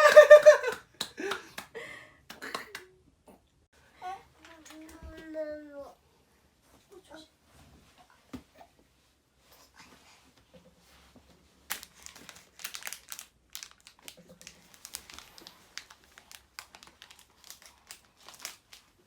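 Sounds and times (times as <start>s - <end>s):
crinkling and crumpling: 10.5s - 19.0s.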